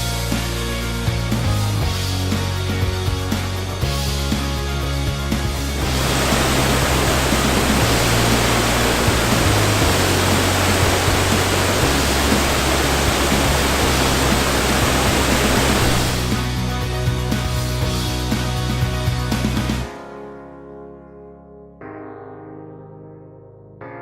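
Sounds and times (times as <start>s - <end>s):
background music bass notes: 0.0s - 20.0s
waterfall rushing: 5.8s - 16.4s.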